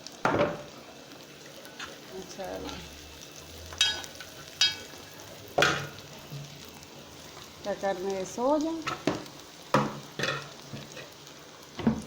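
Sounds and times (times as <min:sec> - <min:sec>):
hiss of food cooking: 0:00.0 - 0:12.0.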